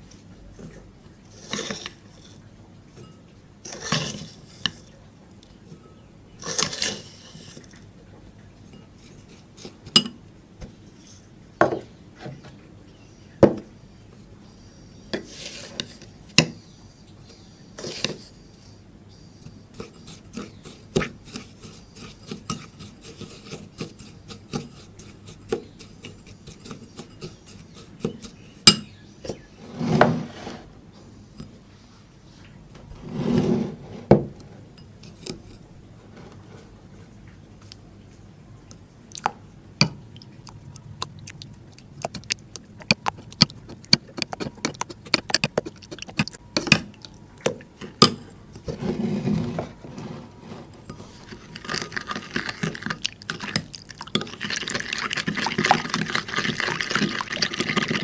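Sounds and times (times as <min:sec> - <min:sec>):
utensil scraping a container: 0:01.3 - 0:02.4, 0:03.0 - 0:04.9, 0:06.4 - 0:07.8, 0:15.2 - 0:16.1, 0:19.4 - 0:30.7, 0:32.9 - 0:36.8, 0:42.2 - 0:46.4, 0:48.6 - 0:58.0.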